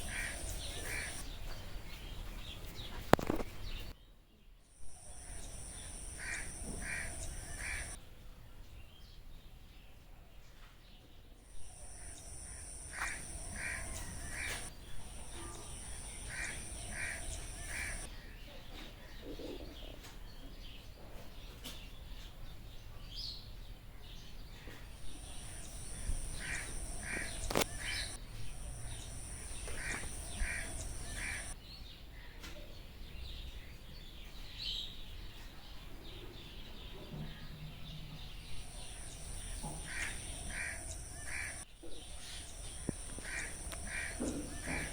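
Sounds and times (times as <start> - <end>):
bird calling harsh notes: 0.0 - 1.2, 4.8 - 8.0, 11.5 - 18.1, 25.0 - 31.6, 38.5 - 44.9
high insect buzz: 0.0 - 1.2, 4.8 - 8.0, 11.5 - 18.1, 25.0 - 31.6, 38.5 - 44.9
sharp click: 25.5 - 28.2.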